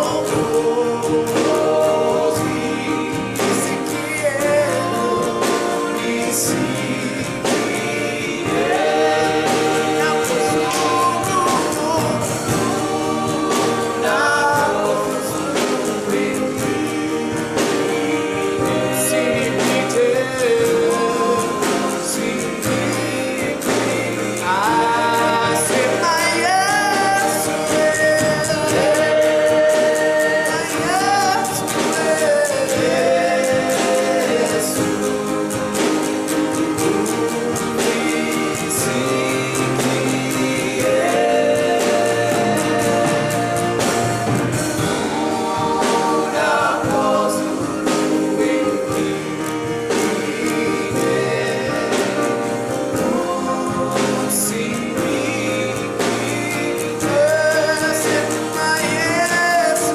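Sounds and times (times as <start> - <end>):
band accompaniment with steady beat: 0.0 - 59.9
group singing gospel song: 0.0 - 59.9.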